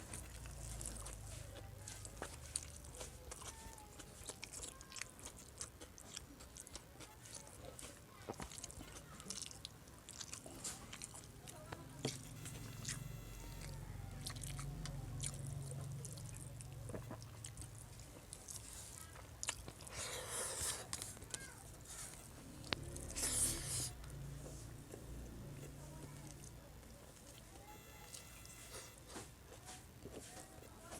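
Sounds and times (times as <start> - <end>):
person chewing and biting: 0.0 - 11.4, 12.0 - 24.2.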